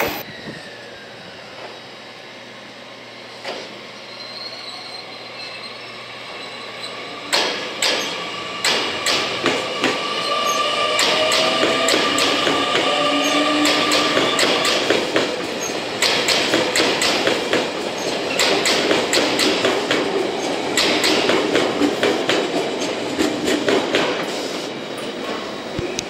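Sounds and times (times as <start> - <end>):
train motor whine: 0.0 - 21.9
train wheels clicking over rail joints: 7.3 - 24.4.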